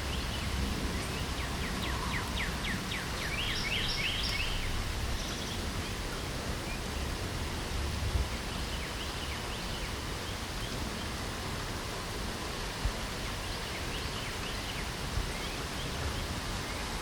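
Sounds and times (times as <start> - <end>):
small birds chirping: 0.0 - 7.2
steady rain: 0.0 - 17.0.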